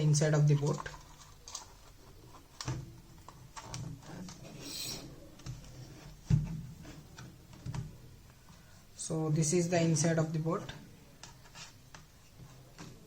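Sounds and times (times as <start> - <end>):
plastic parts clicking and knocking: 0.4 - 4.5.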